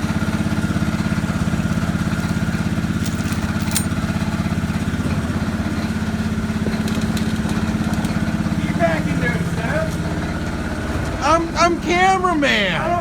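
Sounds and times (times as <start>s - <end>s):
small engine idling: 0.0s - 13.0s.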